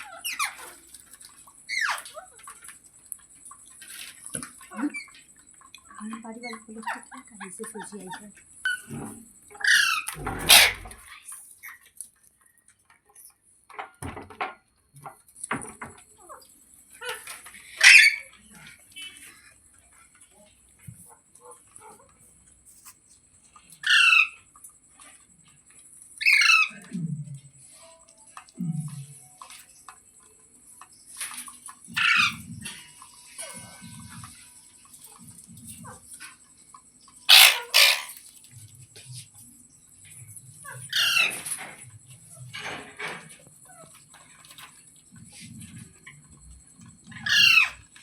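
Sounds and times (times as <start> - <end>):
parrot chirps: 0.0 - 0.9, 1.6 - 2.6, 8.6 - 11.8, 16.9 - 18.4, 23.8 - 24.5, 26.2 - 26.9, 32.0 - 34.0, 37.2 - 38.2, 40.6 - 41.6, 47.1 - 47.8
parrot squawking: 9.5 - 11.1, 17.0 - 18.4, 23.8 - 24.4, 26.2 - 26.8, 32.0 - 32.4, 37.3 - 38.2, 40.9 - 41.5, 47.2 - 47.8.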